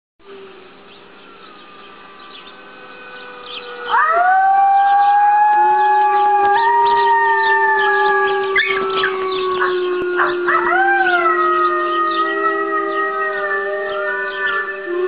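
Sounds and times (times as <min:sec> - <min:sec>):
puppy howling: 0:03.4 - 0:15.0.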